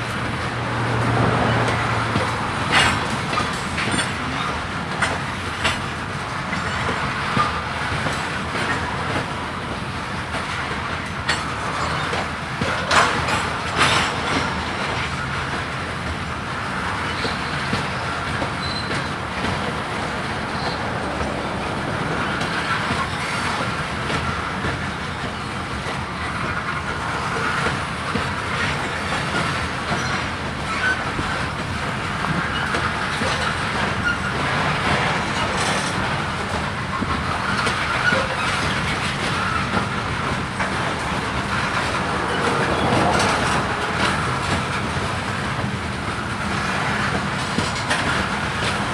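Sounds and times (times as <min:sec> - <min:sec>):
freight train rolling past: 0:00.0 - 0:48.9
wheels clicking over rail joints: 0:00.0 - 0:48.9
faint wheel squeal: 0:17.0 - 0:19.2, 0:33.4 - 0:34.4.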